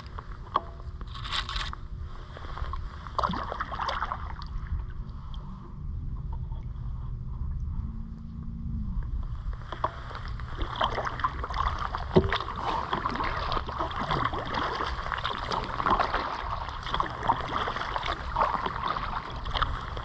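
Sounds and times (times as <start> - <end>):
paddle splashing and dripping: 2.6 - 5.4, 9.6 - 20.0.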